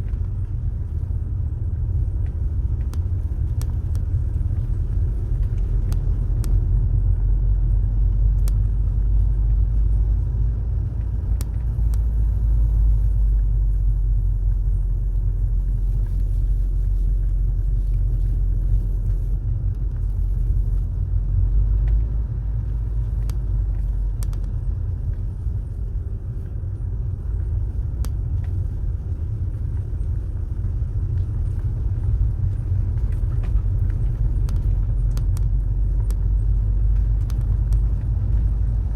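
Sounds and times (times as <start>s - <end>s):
car engine and tyre rumble: 0.0s - 38.9s
faint clicks and ticks: 0.0s - 38.9s.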